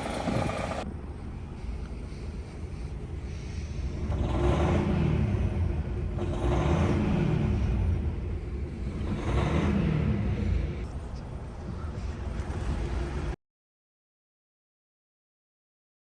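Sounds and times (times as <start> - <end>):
diesel engine revving: 0.0 - 0.8, 3.8 - 10.8
engine hiss: 0.0 - 4.6.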